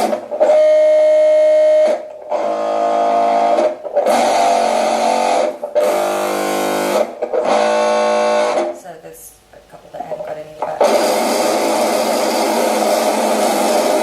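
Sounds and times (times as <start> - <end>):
buzzy vibration motor drones: 2.5 - 8.6.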